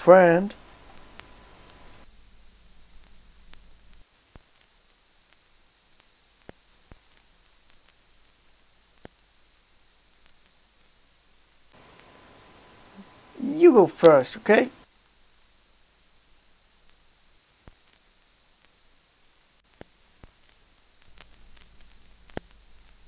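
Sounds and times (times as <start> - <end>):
crickets chirping: 0.2 - 23.0
faint clicks: 0.5 - 9.5, 19.4 - 23.0.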